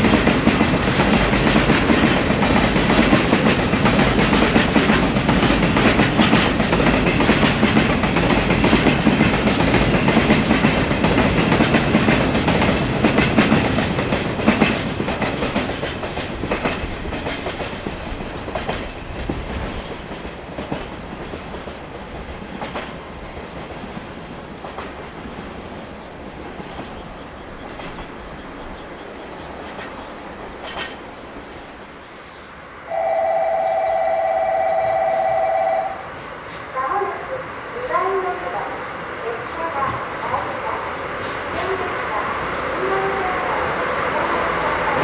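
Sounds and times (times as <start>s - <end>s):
wagon wheels clicking over rail joints: 0.0s - 25.0s.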